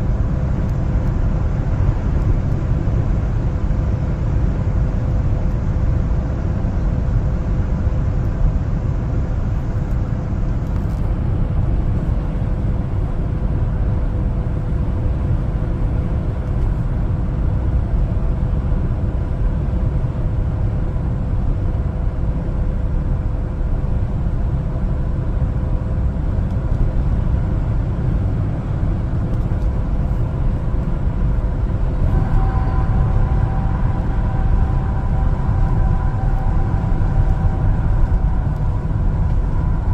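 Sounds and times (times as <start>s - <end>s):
faint constant hum: 0.0s - 39.9s
truck engine and road noise: 0.0s - 39.9s
high whine: 28.0s - 39.9s.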